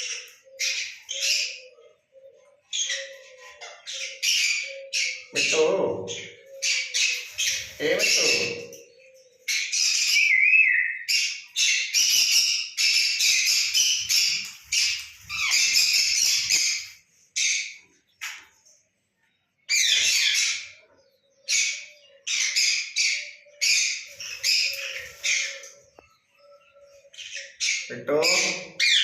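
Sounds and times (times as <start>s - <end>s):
parrot screeching: 9.6s - 17.7s.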